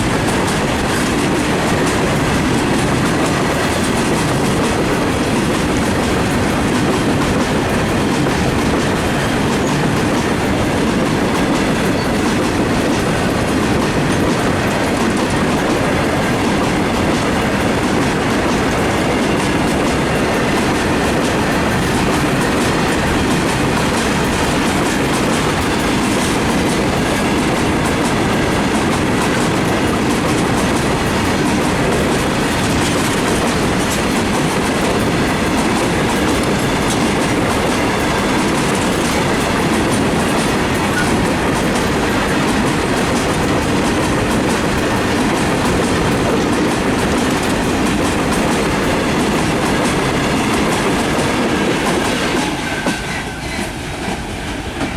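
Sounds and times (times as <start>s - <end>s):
freight train wheels rumbling: 0.0s - 54.9s
wheels clacking over rail joints: 0.0s - 54.9s.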